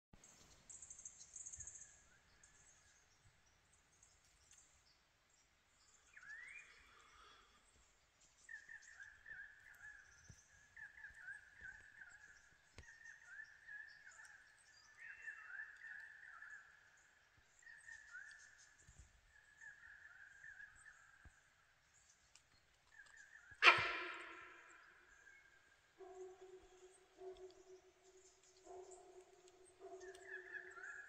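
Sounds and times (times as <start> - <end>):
bird chirping: 0.2 - 31.0
faint bird calls: 22.9 - 31.0.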